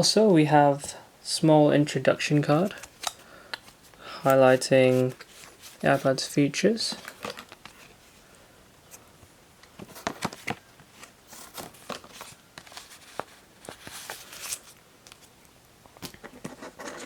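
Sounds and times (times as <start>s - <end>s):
packaging being handled: 2.6s - 8.0s, 9.7s - 15.3s.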